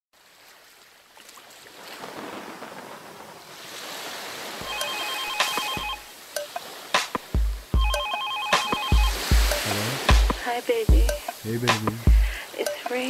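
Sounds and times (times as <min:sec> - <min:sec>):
rain: 0:00.2 - 0:13.0
telephone ringing: 0:04.6 - 0:06.6, 0:07.8 - 0:09.8.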